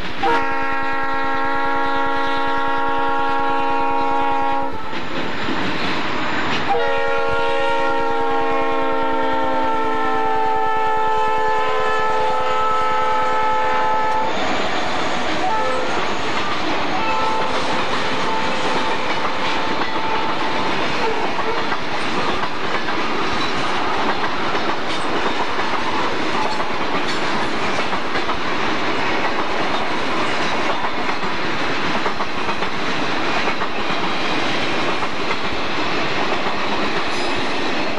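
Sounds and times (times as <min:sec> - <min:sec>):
freight train rolling past: 0:00.0 - 0:37.9
wheels clacking over rail joints: 0:15.4 - 0:37.9.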